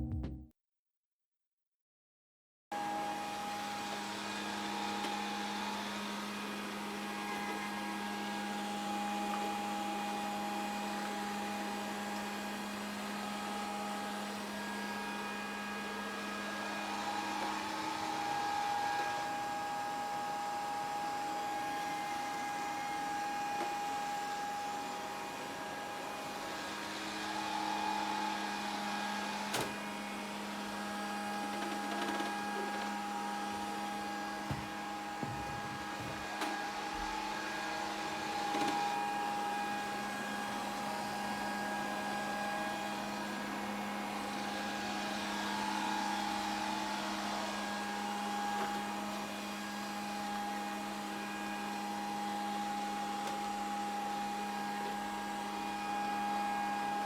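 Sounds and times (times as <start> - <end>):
robot vacuum motor humming: 21.0 - 51.2.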